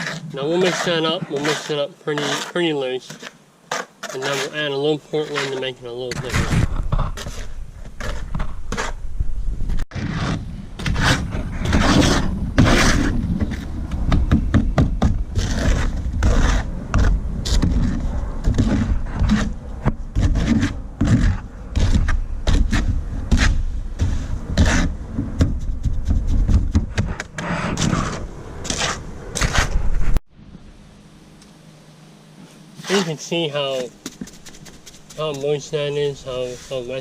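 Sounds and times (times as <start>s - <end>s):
tool scraping wet mortar: 0.0s - 9.0s, 9.9s - 13.7s, 15.4s - 25.0s, 32.8s - 37.0s.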